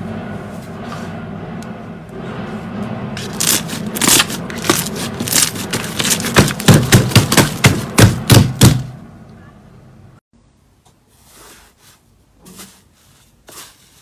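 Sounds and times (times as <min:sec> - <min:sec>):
low steady hum: 0:00.0 - 0:10.9.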